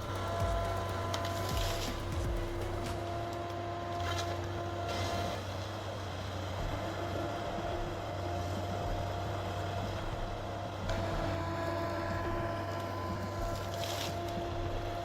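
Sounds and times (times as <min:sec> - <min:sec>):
engine and hydraulics humming: 0:00.0 - 0:15.0.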